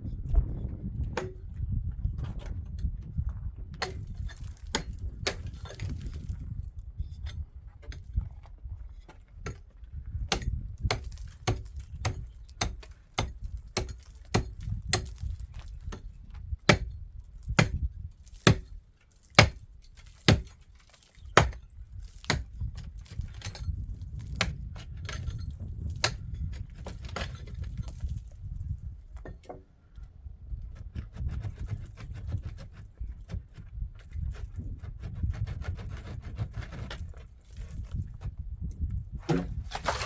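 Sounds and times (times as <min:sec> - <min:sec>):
low rumble: 0:00.0 - 0:05.2.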